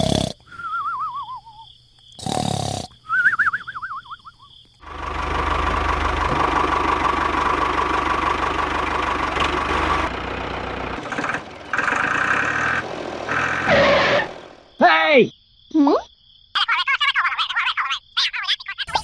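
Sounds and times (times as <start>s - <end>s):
engine running: 4.8s - 14.7s.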